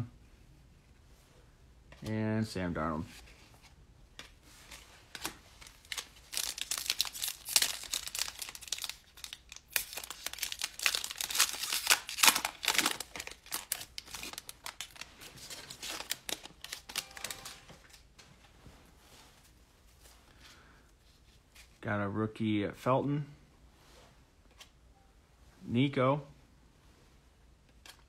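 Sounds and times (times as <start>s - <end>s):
wrapper being torn and crinkled: 5.2s - 18.0s.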